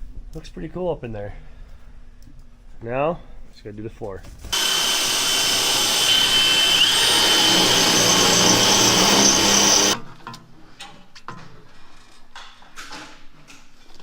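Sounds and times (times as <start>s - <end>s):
power drill running: 4.5s - 10.0s.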